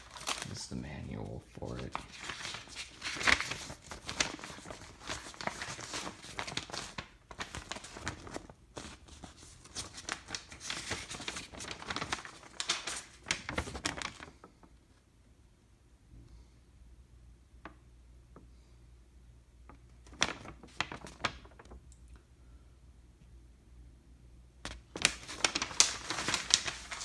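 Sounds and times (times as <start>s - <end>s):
paper rustling and crinkling: 0.0s - 14.7s, 19.7s - 21.8s, 24.7s - 27.0s.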